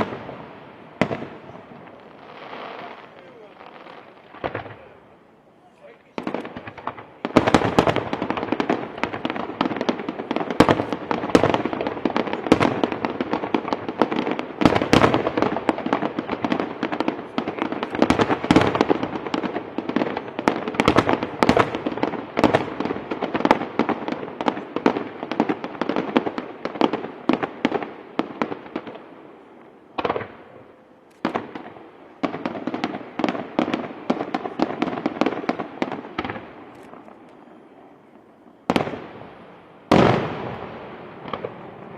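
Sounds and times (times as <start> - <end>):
firecracker reports: 1.8 - 7.6.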